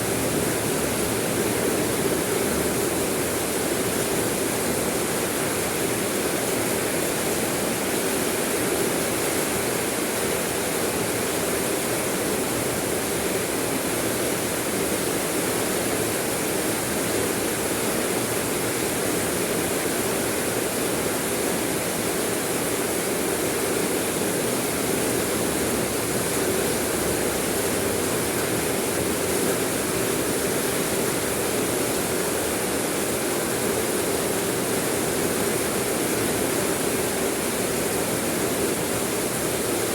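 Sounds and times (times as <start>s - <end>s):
rain falling: 21.6s - 39.9s.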